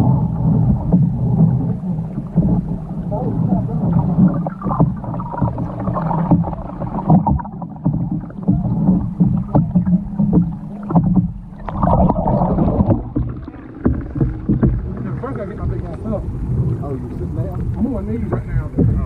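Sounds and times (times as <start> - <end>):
canoe knocks and splashes: 0.0 - 19.0
steady low hum: 0.0 - 19.0.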